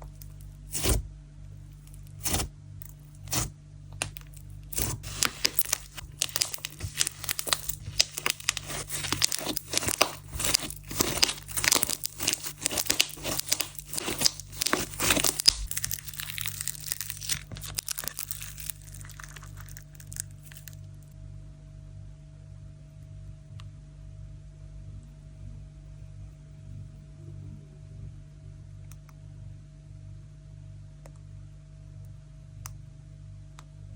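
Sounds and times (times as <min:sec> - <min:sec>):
low steady hum: 0:00.0 - 0:33.9
slime crackling and popping: 0:01.9 - 0:21.0.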